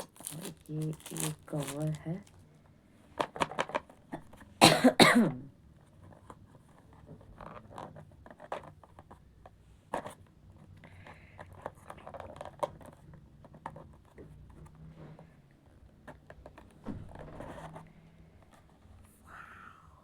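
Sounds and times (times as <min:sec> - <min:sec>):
packaging ripping: 0:00.0 - 0:02.4
packaging rustling: 0:00.0 - 0:02.5.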